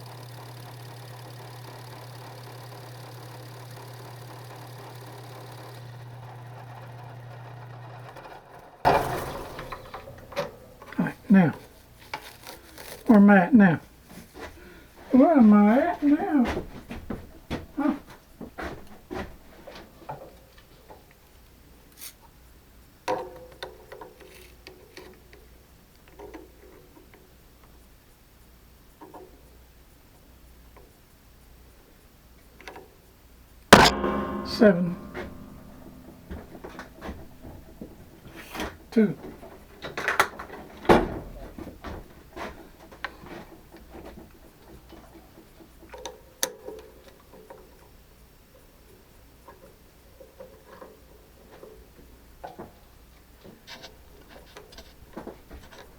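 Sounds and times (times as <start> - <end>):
sharp ringing knock: 33.8 - 38.6.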